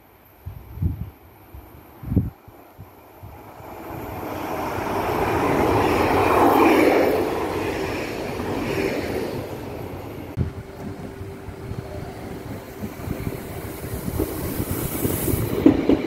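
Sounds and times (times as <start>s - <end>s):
train rumble and wheel-on-rail noise: 0.0s - 16.0s.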